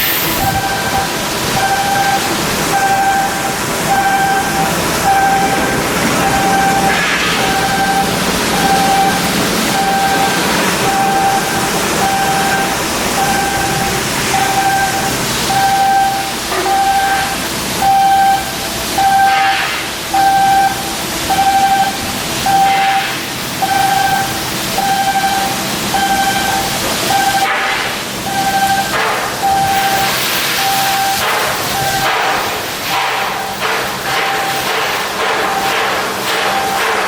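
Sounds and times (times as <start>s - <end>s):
electronic warning beeper: 0.0s - 32.2s, 32.9s - 37.0s
machinery hiss: 0.0s - 37.0s.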